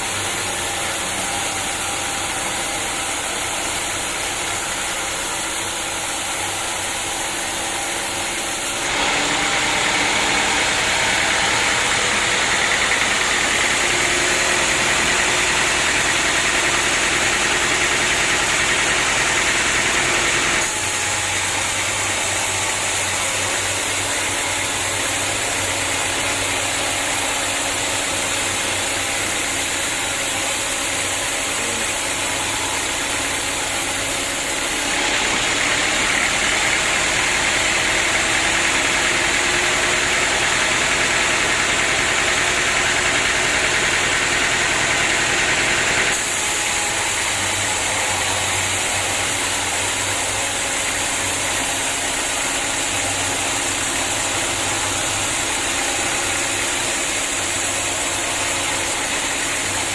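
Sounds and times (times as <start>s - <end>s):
sawmill machinery cutting wood: 0.0s - 59.9s.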